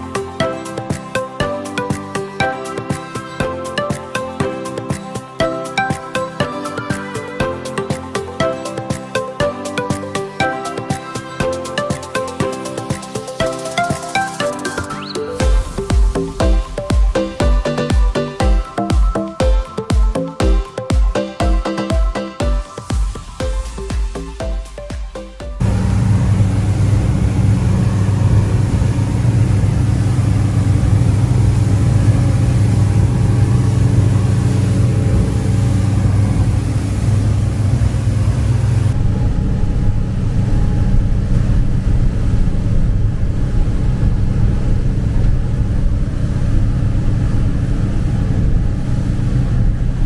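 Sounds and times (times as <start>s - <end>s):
motorboat engine droning: 25.6s - 50.0s
wind and water rushing: 25.6s - 50.0s.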